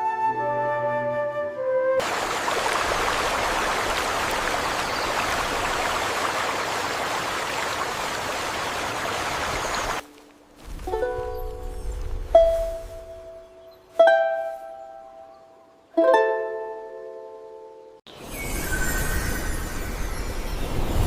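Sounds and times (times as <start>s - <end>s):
rushing water: 2.0s - 13.3s.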